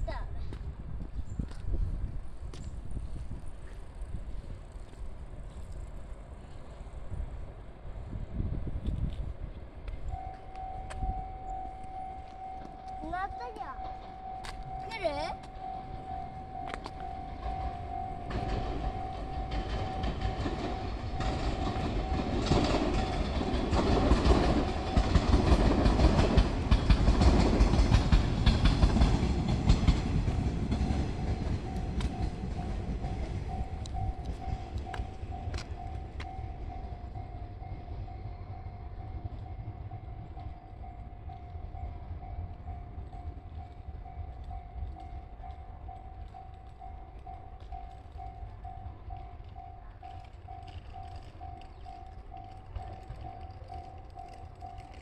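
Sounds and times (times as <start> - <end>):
train wheels rumbling and clacking: 0.0 - 55.0
steady high tone: 10.1 - 23.1, 30.8 - 55.0.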